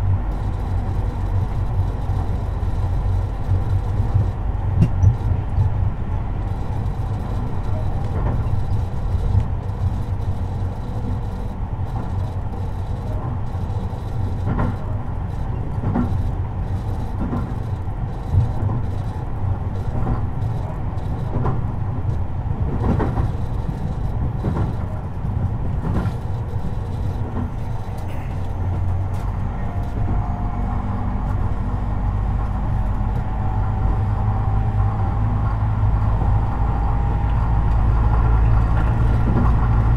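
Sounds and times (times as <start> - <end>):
train rumble: 0.0 - 39.9
wheels clacking over rail joints: 37.7 - 39.9.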